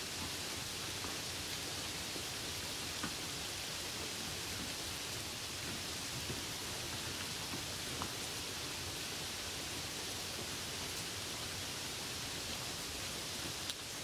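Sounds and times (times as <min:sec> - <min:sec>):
steady rain on a puddle: 0:00.0 - 0:14.0.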